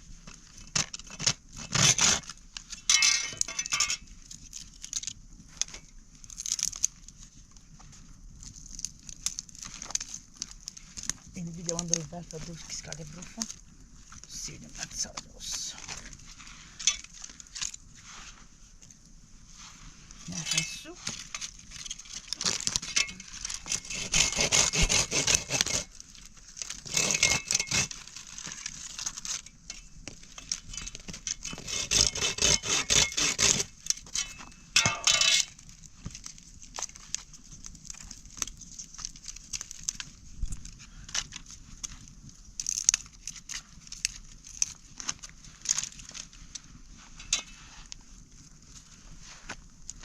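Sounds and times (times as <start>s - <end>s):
objects rustling and clinking: 2.7s - 7.0s, 15.0s - 19.0s, 20.1s - 24.0s, 33.8s - 42.0s, 42.6s - 48.2s.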